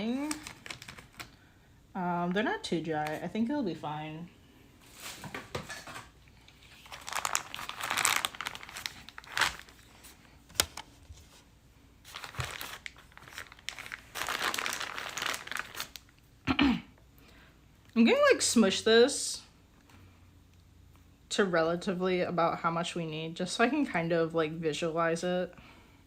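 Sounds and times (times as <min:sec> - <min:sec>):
plastic crinkling: 0:00.0 - 0:01.4, 0:06.4 - 0:11.4, 0:12.0 - 0:16.2.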